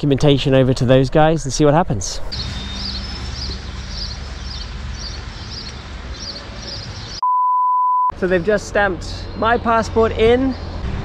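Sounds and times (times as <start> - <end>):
small bird chirping: 2.3 - 7.2
loud electronic beep: 7.2 - 8.1.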